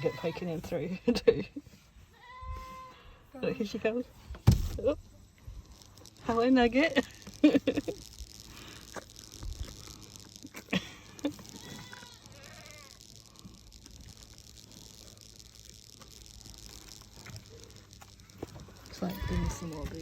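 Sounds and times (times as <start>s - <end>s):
goat bleating: 0.0s - 0.6s, 10.7s - 13.0s, 19.0s - 20.0s.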